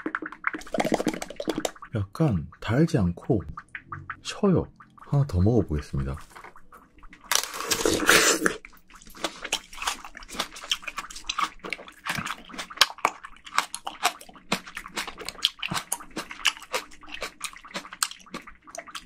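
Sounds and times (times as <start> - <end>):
wet chewing: 6.1 - 19.0
juicy bite into fruit: 7.3 - 8.6.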